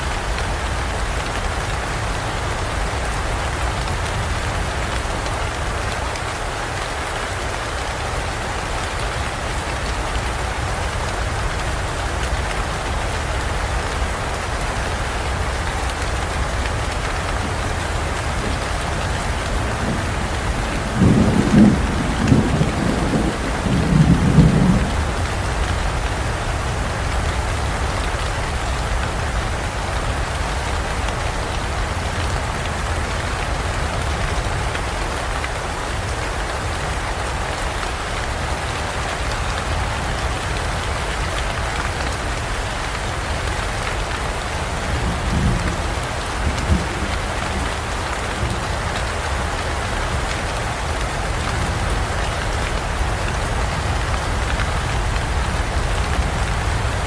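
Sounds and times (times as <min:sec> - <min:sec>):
steady rain in forest: 0:00.0 - 0:57.0
low thunder rumbles: 0:12.3 - 0:29.8, 0:43.7 - 0:57.0.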